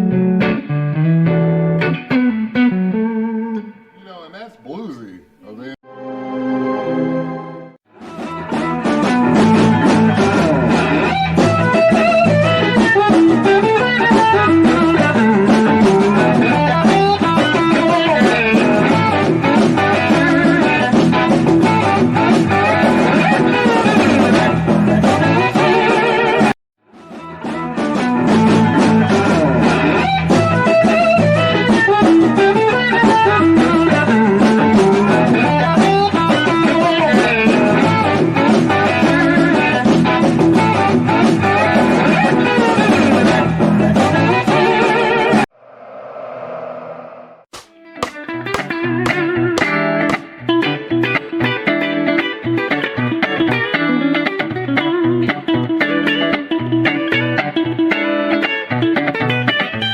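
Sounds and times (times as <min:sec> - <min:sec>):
backing track with bass line: 0:00.0 - 0:03.8, 0:08.1 - 0:45.2, 0:47.6 - 0:51.7
electric guitar blues lick: 0:00.0 - 0:04.0, 0:08.0 - 0:45.4, 0:47.6 - 0:59.9.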